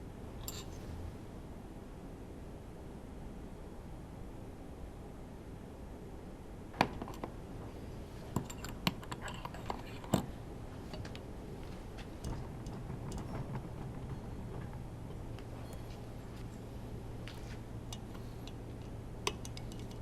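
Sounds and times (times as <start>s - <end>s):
low steady hum: 0.0s - 20.0s
hand tools clicking and knocking: 8.3s - 20.0s.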